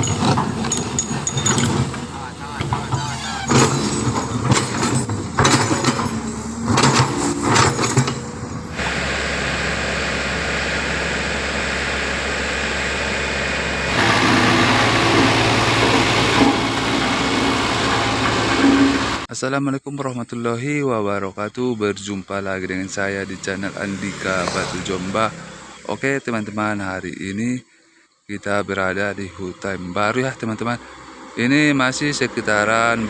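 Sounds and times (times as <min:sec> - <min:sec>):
heavy truck engine running: 0:00.0 - 0:19.3, 0:22.7 - 0:26.0.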